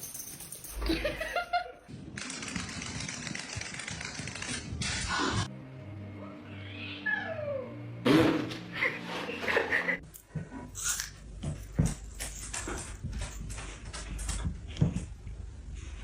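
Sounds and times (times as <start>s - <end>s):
cat meowing: 6.6s - 7.7s.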